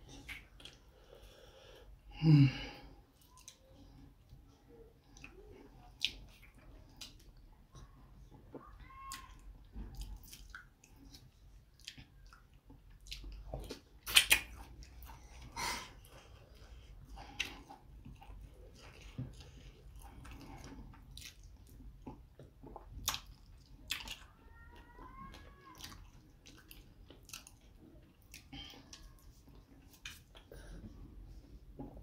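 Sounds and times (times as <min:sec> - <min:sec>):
lip smacks: 0:00.1 - 0:00.8, 0:11.8 - 0:15.1
wet chewing: 0:08.5 - 0:30.5.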